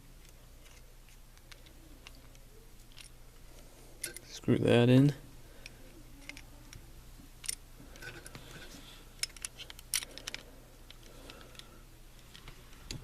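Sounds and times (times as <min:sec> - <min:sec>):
metal clicks of revolver parts: 0:05.6 - 0:06.5, 0:07.4 - 0:08.3, 0:09.2 - 0:11.7.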